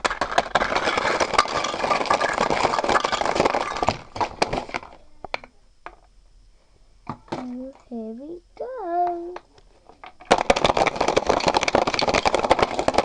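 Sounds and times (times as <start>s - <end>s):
toy pieces clicking: 0.0s - 4.0s, 10.1s - 13.0s
toy pieces rattling: 0.0s - 5.0s, 10.0s - 13.0s.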